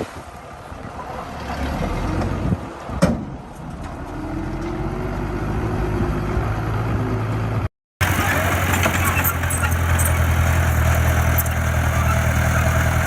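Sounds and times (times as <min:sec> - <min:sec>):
diesel engine running: 0:04.3 - 0:13.0.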